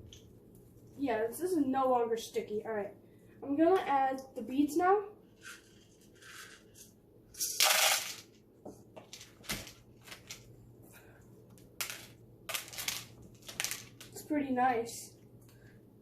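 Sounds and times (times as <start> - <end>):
beads pouring: 7.4 - 8.3, 12.5 - 13.9
plastic beads rattling: 7.4 - 8.4, 11.8 - 14.2.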